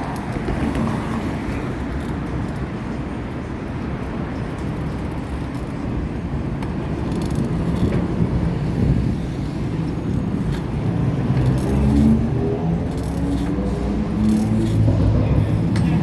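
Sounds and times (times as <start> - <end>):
road traffic rumble: 0.0 - 16.0
passing vehicle engine hum: 9.6 - 16.0.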